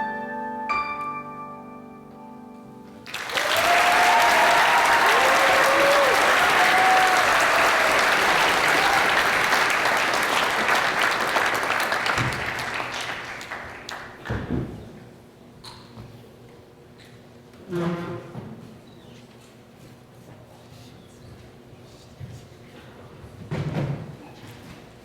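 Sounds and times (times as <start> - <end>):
piano notes: 0.0 - 3.2
audience applauding: 3.0 - 14.4
audience whooping: 3.1 - 13.9.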